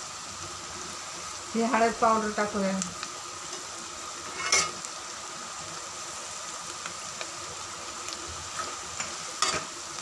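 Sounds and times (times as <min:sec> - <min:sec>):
food sizzling in oil: 0:00.0 - 0:10.0
spatula stirring in a pan: 0:03.0 - 0:10.0
spatula scraping a pan: 0:03.4 - 0:04.8, 0:08.4 - 0:09.8.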